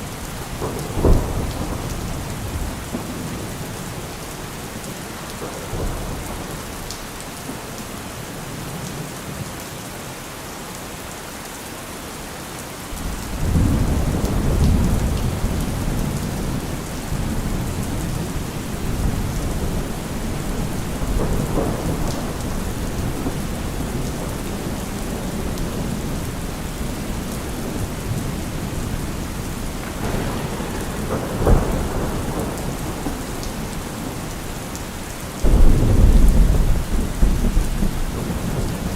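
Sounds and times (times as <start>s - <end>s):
rolling thunder: 0.0s - 7.1s, 12.9s - 38.9s
steady rain: 0.0s - 38.9s
sharp thunderclap: 0.3s - 3.8s, 13.0s - 38.9s.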